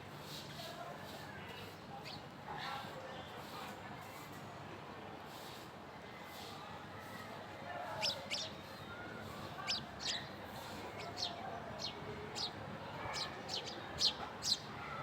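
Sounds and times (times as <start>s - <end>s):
small birds chirping: 7.8s - 14.7s
bird twittering chatter: 8.0s - 8.5s.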